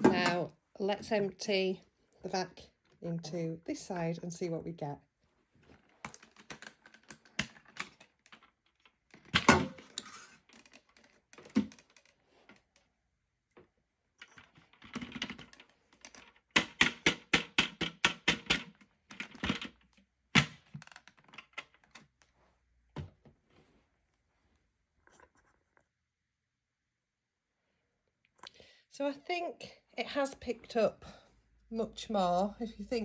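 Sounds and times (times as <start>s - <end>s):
plastic clatter: 5.7s - 12.8s, 14.2s - 22.2s
plastic clicks and knocks: 6.0s - 12.6s, 13.5s - 22.2s.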